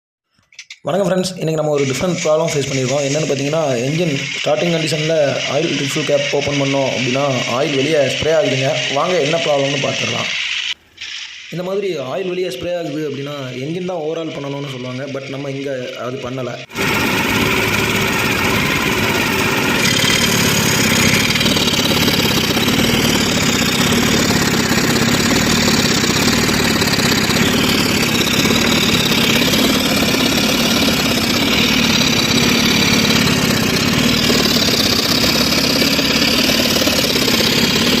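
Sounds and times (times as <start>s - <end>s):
car engine idling with clatter: 16.8s - 38.0s.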